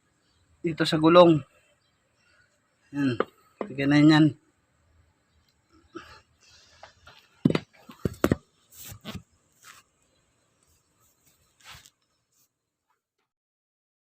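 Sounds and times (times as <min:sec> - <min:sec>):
soft scrapes and shuffles: 0:06.6 - 0:09.9, 0:10.7 - 0:12.5
hard knocks of car parts: 0:07.4 - 0:08.4.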